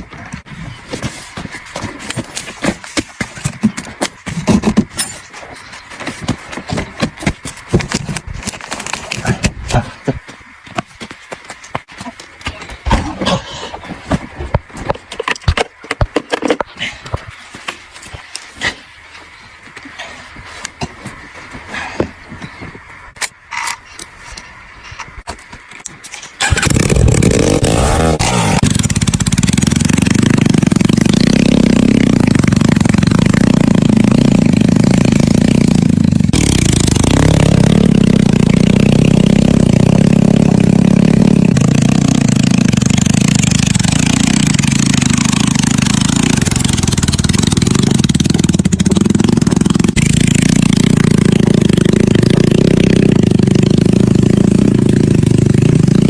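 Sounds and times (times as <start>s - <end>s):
motorcycle engine starting and running: 26.4s - 56.0s.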